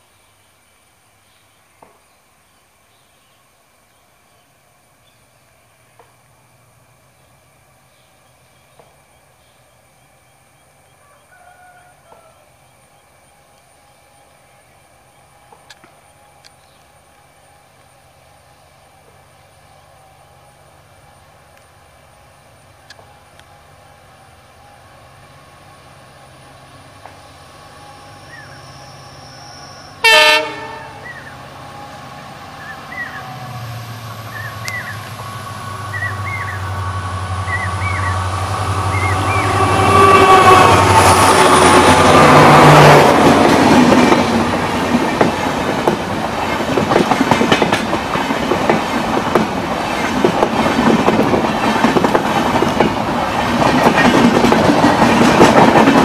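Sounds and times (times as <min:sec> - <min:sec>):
diesel locomotive engine running: 0:12.5 - 0:56.0
locomotive horn toot: 0:29.9 - 0:32.0, 0:38.8 - 0:43.2
train wheels clattering on rails: 0:40.9 - 0:56.0.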